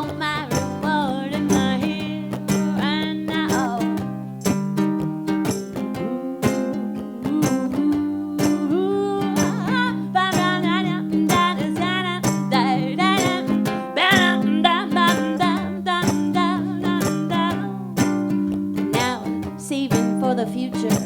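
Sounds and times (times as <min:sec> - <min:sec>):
strummed guitar chords: 0:00.0 - 0:21.0.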